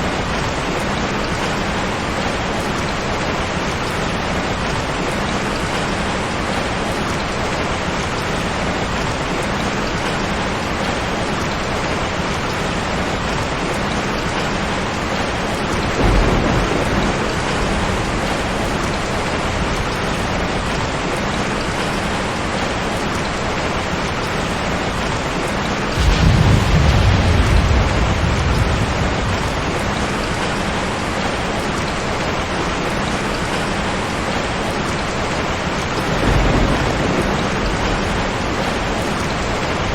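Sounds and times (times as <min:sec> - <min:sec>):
heavy rain: 0:00.0 - 0:39.9
thunder rumbling: 0:12.8 - 0:22.9, 0:24.6 - 0:31.6, 0:35.9 - 0:39.9.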